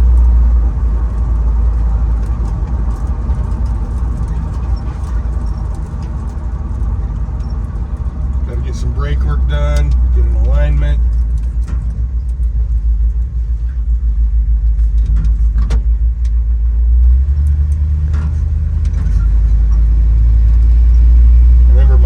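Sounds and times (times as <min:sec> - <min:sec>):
clicks and rattles: 0:00.0 - 0:08.6, 0:09.7 - 0:13.8
engine and road rumble: 0:00.0 - 0:22.0.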